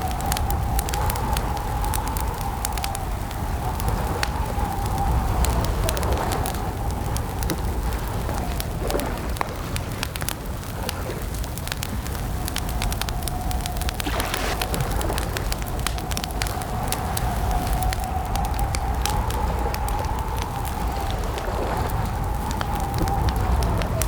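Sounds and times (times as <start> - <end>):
campfire crackling and popping: 0.0 - 24.0
faint wavering whistle tone: 14.0 - 15.2.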